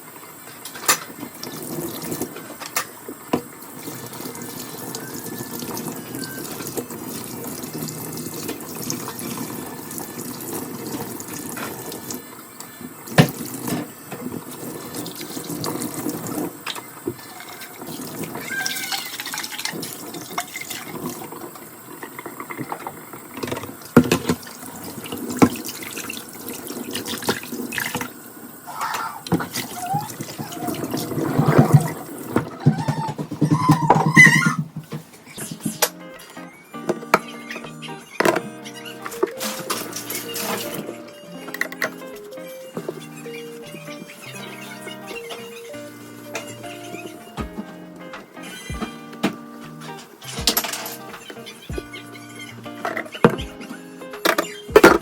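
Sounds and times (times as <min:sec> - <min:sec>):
tap running into sink: 0:13.1 - 0:17.2.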